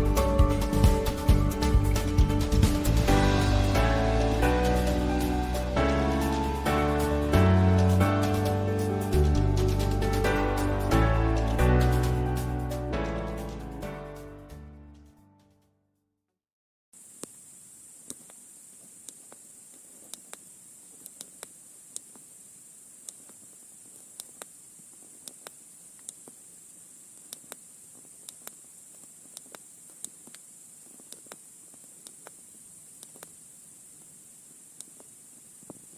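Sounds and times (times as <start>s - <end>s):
faint steady hiss: 17.0s - 35.9s
sharp clicks and crackles: 19.0s - 22.2s, 24.0s - 24.6s, 25.2s - 26.4s, 27.2s - 32.4s, 33.0s - 33.4s.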